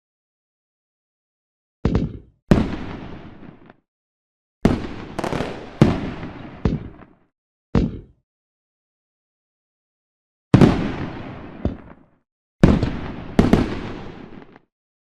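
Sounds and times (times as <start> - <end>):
firework bangs: 2.5 - 3.8, 4.6 - 7.2, 10.5 - 14.6.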